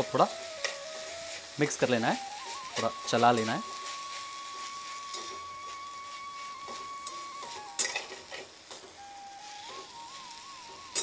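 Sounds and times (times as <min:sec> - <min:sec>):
potatoes frying in oil: 0:00.0 - 0:11.0
metal spoon scraping pan: 0:03.4 - 0:08.5.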